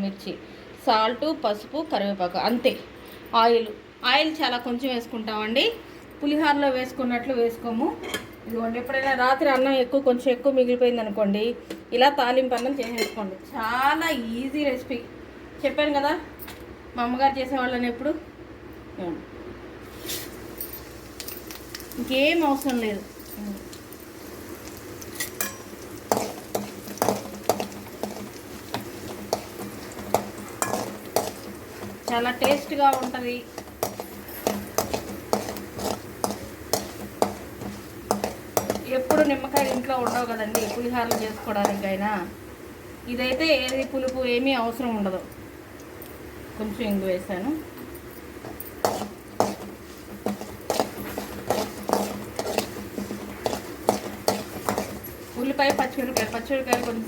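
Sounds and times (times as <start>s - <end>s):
oil sizzling: 19.8s - 57.0s
spoon scraping and knocking pan: 20.1s - 42.1s, 48.2s - 57.0s.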